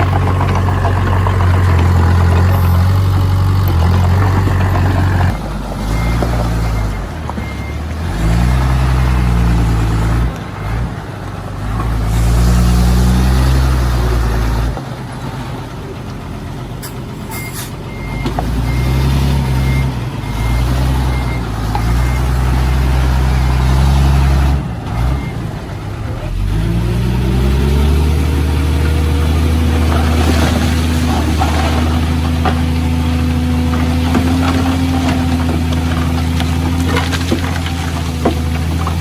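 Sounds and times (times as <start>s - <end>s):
diesel engine running: 0.0s - 39.0s
reversing alarm beeping: 4.8s - 8.5s, 16.8s - 22.4s.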